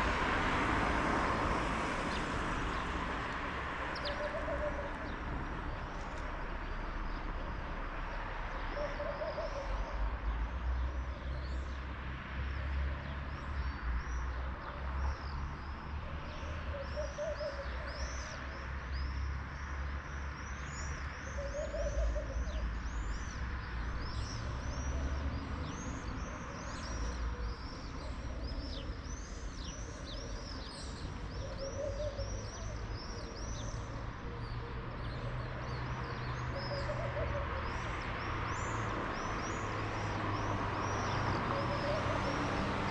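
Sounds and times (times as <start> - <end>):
small birds chirping: 2.0 - 7.6, 12.5 - 42.9
low hooting call: 4.0 - 5.2.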